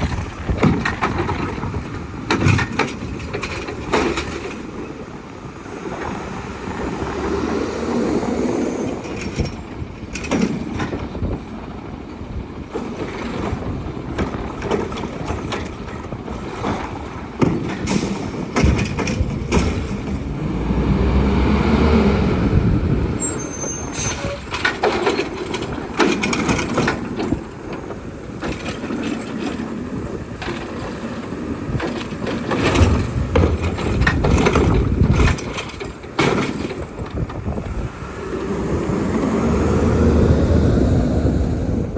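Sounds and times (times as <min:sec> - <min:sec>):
metallic clanks and knocks: 0:00.0 - 0:05.0, 0:09.0 - 0:11.4, 0:17.4 - 0:20.3, 0:24.3 - 0:29.8, 0:31.7 - 0:37.6
garbage truck diesel engine: 0:00.0 - 0:41.9.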